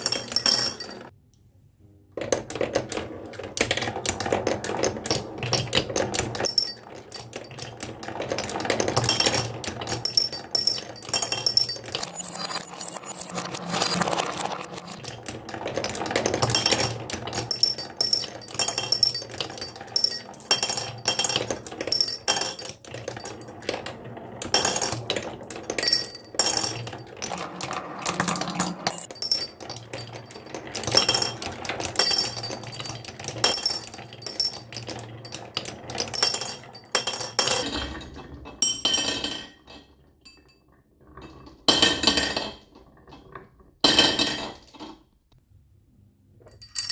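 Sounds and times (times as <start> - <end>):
marbles rolling down wooden run: 2.2 - 37.6.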